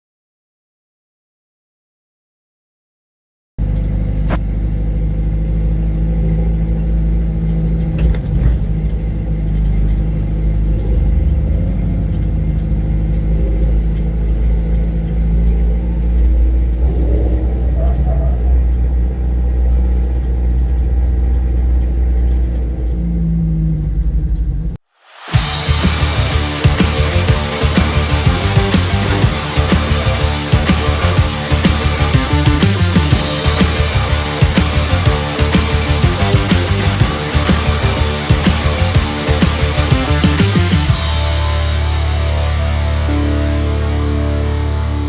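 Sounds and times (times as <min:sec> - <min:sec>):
car engine droning: 0:03.6 - 0:45.0.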